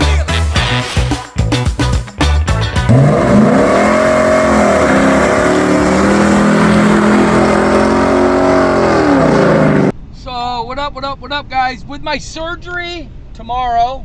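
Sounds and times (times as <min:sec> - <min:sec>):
upbeat music: 0:00.0 - 0:07.2
car engine revving: 0:02.9 - 0:09.9.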